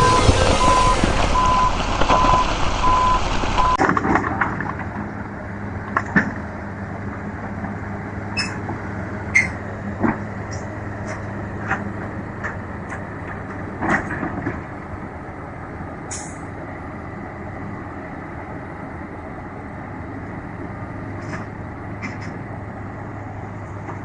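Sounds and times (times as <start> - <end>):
reversing alarm beeping: 0.0 - 3.8
heavy truck engine running: 0.0 - 24.0.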